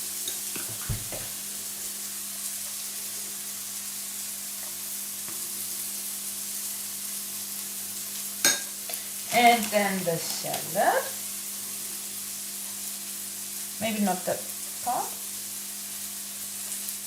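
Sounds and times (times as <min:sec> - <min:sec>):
patties sizzling in a frying pan: 0:00.0 - 0:17.0.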